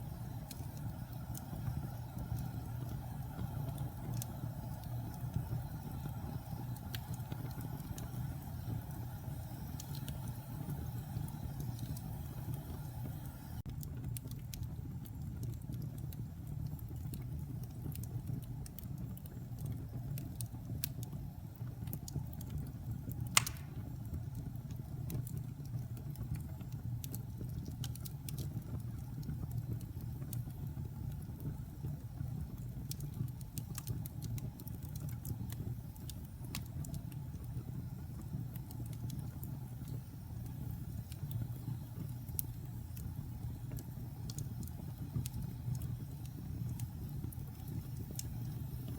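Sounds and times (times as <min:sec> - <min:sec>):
fire flames rumbling: 0:00.0 - 0:48.9
logs crackling: 0:23.3 - 0:23.8
sharp loud pop: 0:23.4 - 0:23.8.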